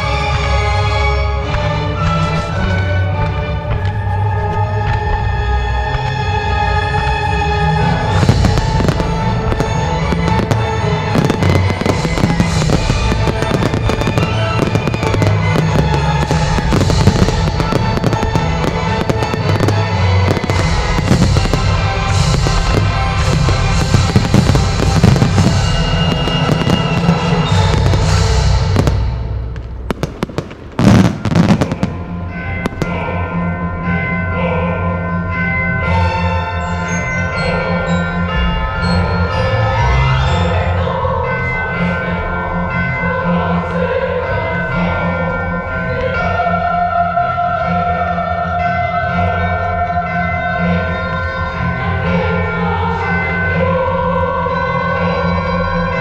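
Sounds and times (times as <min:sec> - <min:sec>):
music: 0:00.0 - 0:56.0
fireworks bursting and crackling: 0:08.0 - 0:33.4
loud fireworks bangs: 0:08.0 - 0:33.8.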